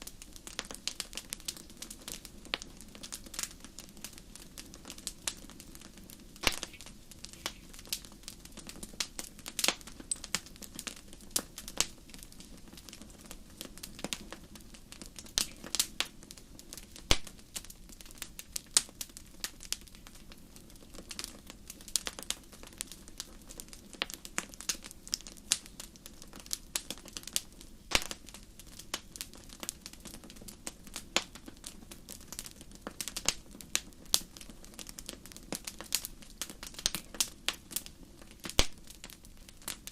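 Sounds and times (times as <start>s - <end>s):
fire crackling and popping: 0.0s - 39.9s
low rush of flames: 0.0s - 39.9s.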